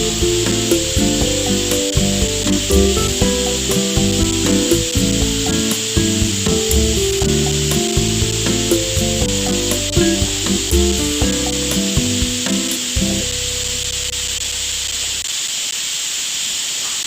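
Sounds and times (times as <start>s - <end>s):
background music with light beat: 0.0s - 13.5s
steady hiss: 0.0s - 17.0s.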